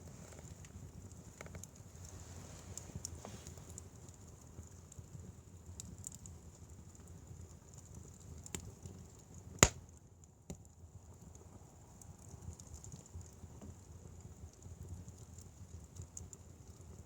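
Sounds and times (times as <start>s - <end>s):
fire popping: 0.0s - 10.0s
wood fire crackling: 0.0s - 17.0s.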